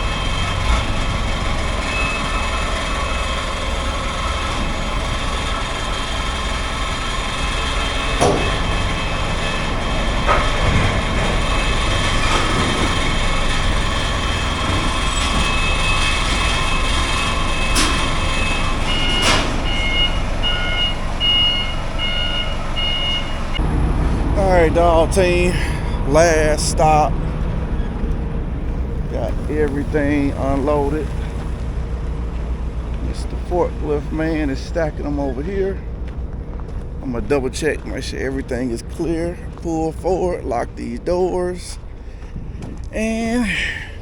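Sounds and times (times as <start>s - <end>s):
reversing alarm beeping: 0.0s - 23.7s
engine running: 0.0s - 44.0s.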